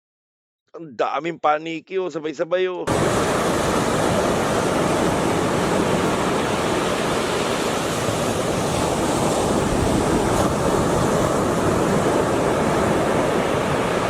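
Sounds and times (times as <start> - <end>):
steady rushing noise: 2.9 - 14.0.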